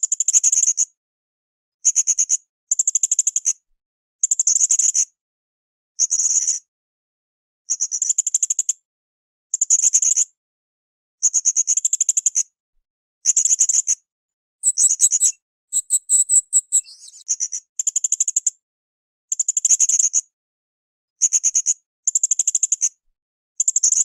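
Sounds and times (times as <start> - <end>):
parrot calling shrill high notes: 14.6 - 17.2.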